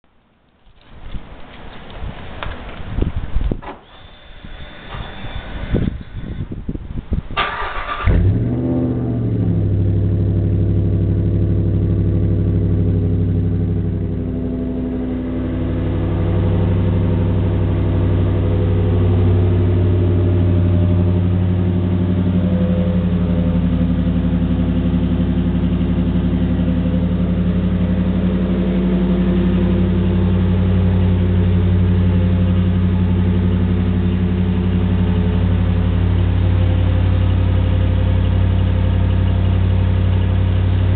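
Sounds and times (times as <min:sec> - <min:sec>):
engine idling through loud exhaust: 0:03.9 - 0:40.9
engine cranking and starting: 0:07.3 - 0:10.1.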